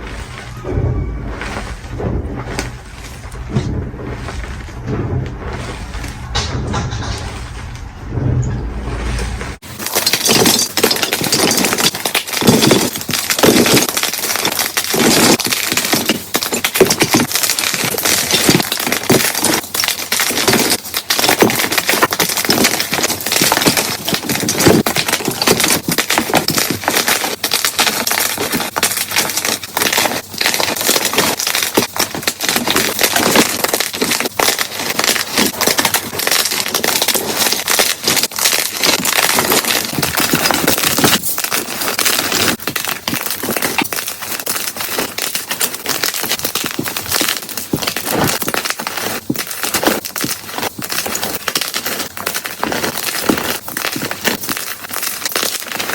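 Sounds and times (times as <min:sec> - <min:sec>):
chalk blocks crunching: 0:00.0 - 0:07.8, 0:09.0 - 0:55.9.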